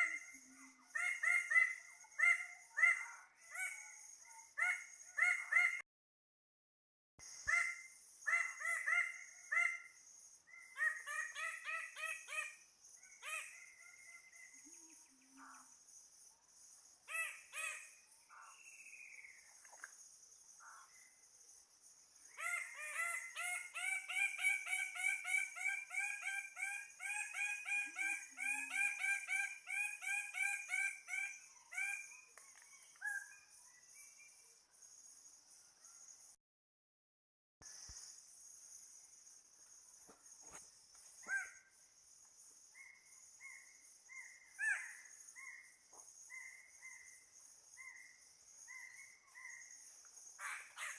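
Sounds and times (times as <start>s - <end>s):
birds calling in repeated notes: 0.0s - 5.8s, 7.2s - 16.2s, 16.9s - 21.2s, 22.2s - 36.1s, 39.6s - 50.9s
high insect drone: 37.6s - 50.9s.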